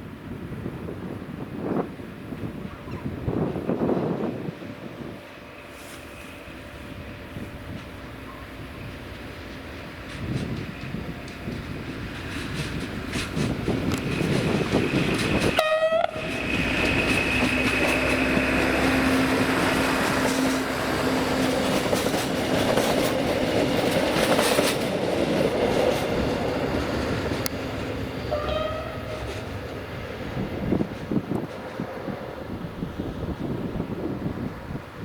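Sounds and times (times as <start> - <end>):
train wheels rumbling on rails: 0.0 - 35.0
train horn blast: 15.6 - 16.4, 28.2 - 29.5.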